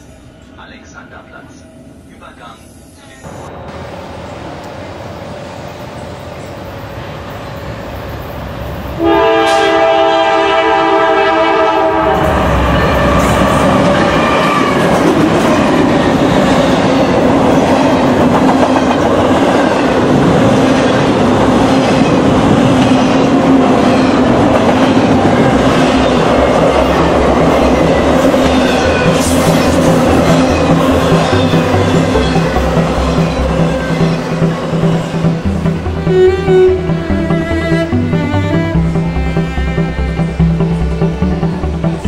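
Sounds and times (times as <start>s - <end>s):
train rumbling and clattering: 0.0s - 42.0s
train horn: 9.0s - 14.8s.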